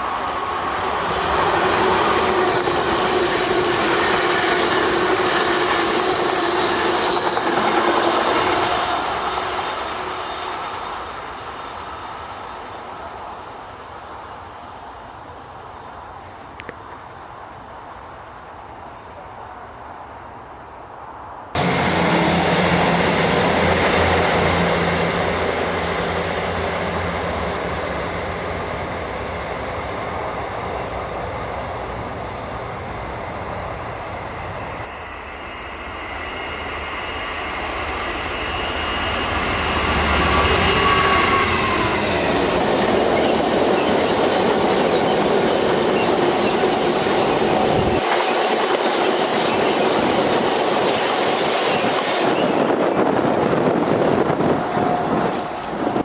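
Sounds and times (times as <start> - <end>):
train wheels on rails: 0.0 - 56.0
faint high squeal: 34.3 - 50.4.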